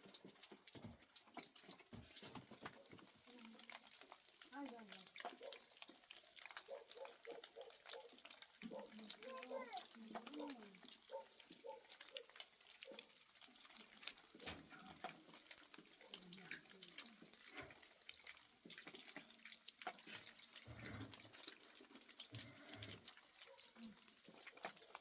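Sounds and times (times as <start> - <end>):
small ticks: 0.0 - 25.0
water dripping and trickling: 0.0 - 25.0
faint voice: 8.7 - 10.8.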